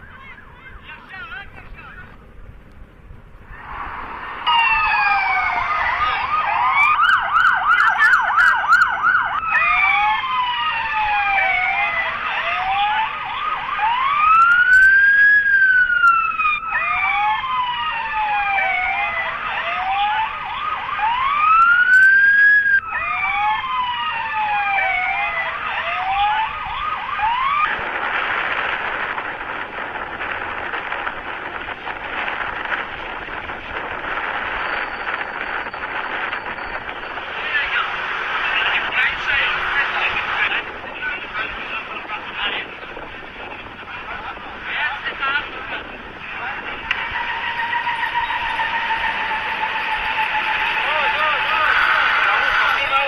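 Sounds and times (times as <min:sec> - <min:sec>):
emergency vehicle sirens: 0:00.0 - 0:02.2, 0:03.3 - 0:53.0
steady rushing noise: 0:00.0 - 0:12.4, 0:26.5 - 0:53.0.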